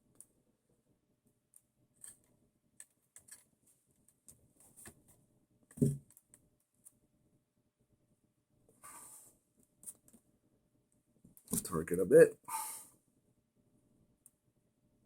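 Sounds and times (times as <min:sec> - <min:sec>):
dull bump: 0:05.8 - 0:06.0.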